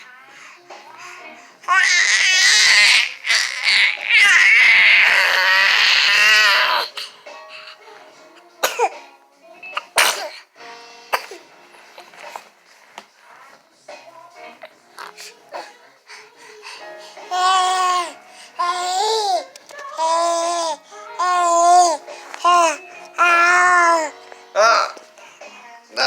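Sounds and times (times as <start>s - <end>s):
baby squealing: 1.7s - 7.0s, 20.0s - 24.1s
baby coughing: 8.6s - 9.1s, 9.8s - 10.5s, 11.1s - 11.5s, 20.6s - 25.0s.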